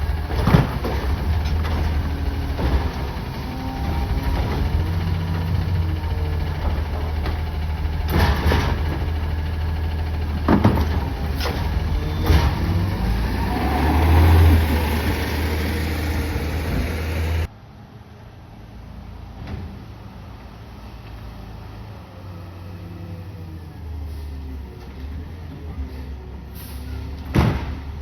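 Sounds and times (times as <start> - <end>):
garbage truck engine running: 0.0 - 17.5.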